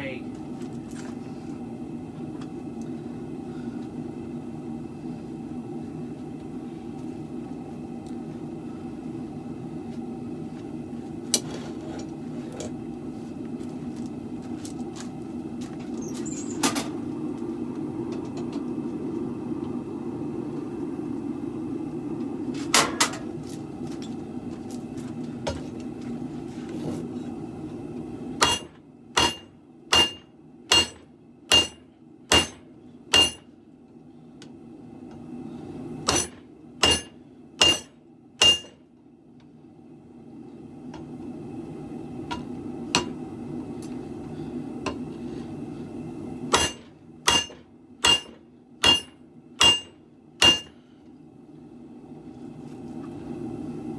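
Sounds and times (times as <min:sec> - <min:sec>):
hammer striking steel on anvil: 0:28.4 - 0:33.5, 0:36.1 - 0:38.8, 0:42.3 - 0:43.2, 0:46.5 - 0:50.8.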